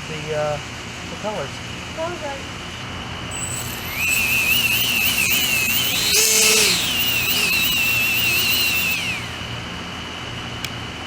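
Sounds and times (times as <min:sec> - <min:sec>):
electric fans whining: 0:03.3 - 0:10.8.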